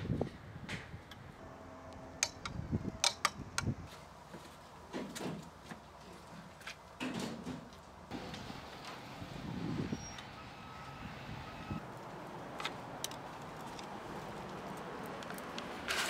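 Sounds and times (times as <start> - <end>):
sharp clicks and knocks: 2.2 - 3.8.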